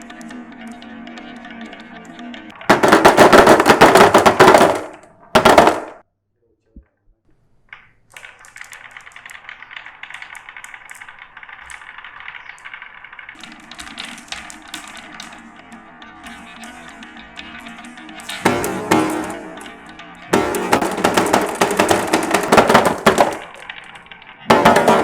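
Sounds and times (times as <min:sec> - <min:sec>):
marbles rolling: 0:02.5 - 0:06.0, 0:07.8 - 0:25.0
marbles clattering down a track: 0:08.1 - 0:25.0.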